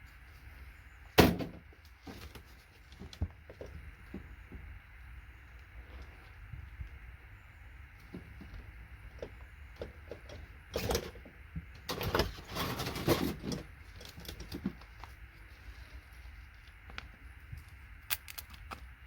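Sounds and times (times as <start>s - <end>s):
scraping and rattling: 11.9s - 14.8s.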